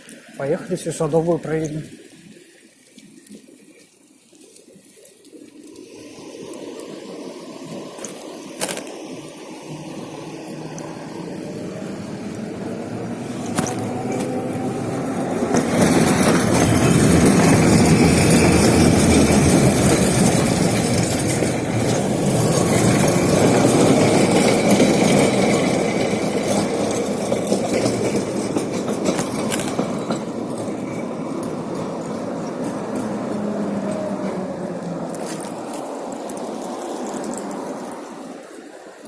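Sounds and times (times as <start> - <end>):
road noise: 4.4 - 39.0
wind rush: 6.9 - 28.5.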